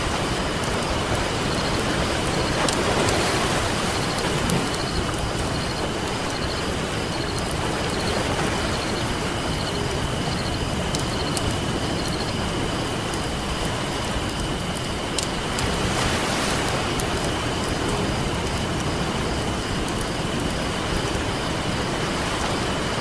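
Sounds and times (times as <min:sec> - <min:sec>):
constant high-pitched tone: 0:00.0 - 0:15.6
campfire crackling: 0:00.0 - 0:23.0
ocean waves washing: 0:00.0 - 0:23.0.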